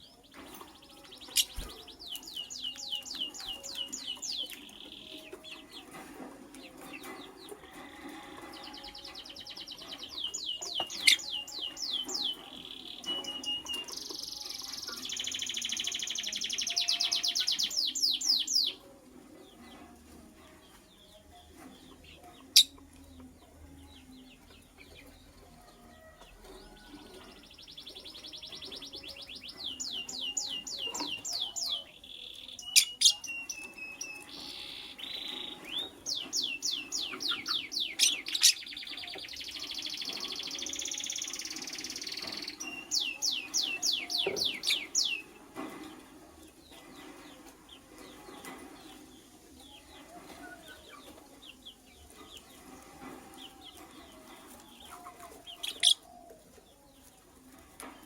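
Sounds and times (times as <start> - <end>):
lovebird chirping: 55.6 - 56.1.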